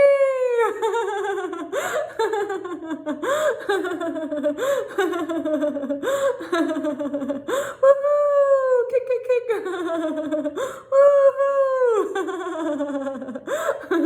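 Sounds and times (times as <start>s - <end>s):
woman laughing: 0.0s - 14.0s.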